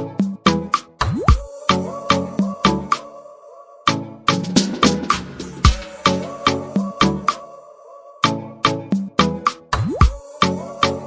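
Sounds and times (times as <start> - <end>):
punchy drum beat and bass line: 0.2 - 1.5, 4.3 - 7.4, 9.0 - 10.2.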